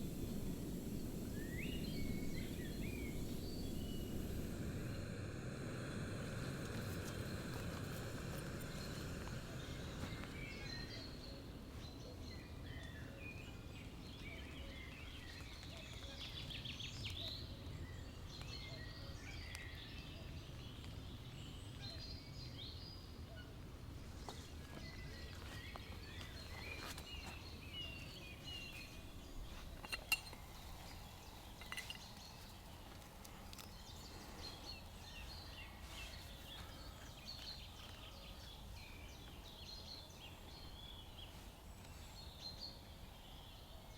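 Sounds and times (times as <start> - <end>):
faint low rumble: 0.0 - 12.8.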